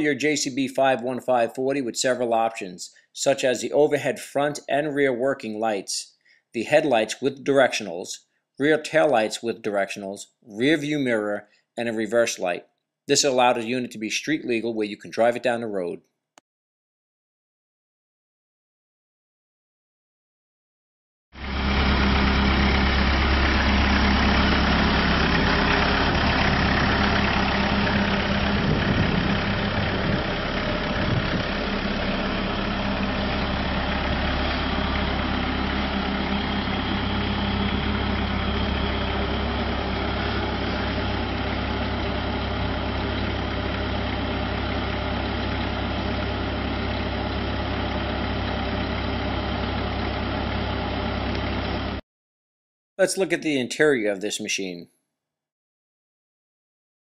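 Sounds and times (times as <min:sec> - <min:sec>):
engine idling: 0:21.4 - 0:52.0.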